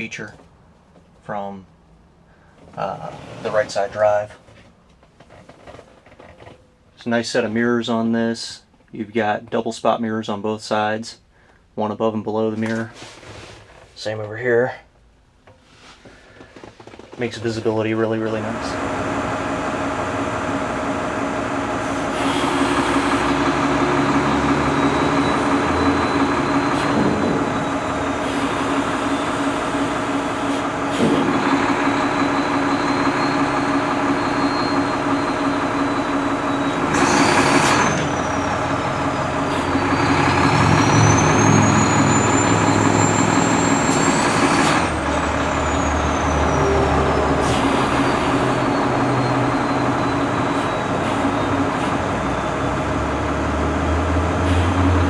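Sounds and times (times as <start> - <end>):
diesel truck engine running: 0.0 - 4.5, 17.2 - 55.0.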